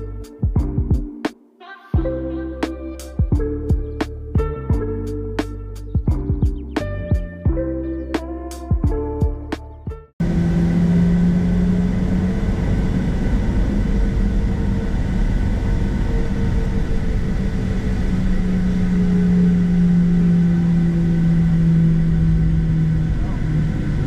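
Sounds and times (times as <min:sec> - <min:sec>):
low engine hum: 0:10.1 - 0:24.0
airliner cabin engine drone: 0:10.2 - 0:24.0.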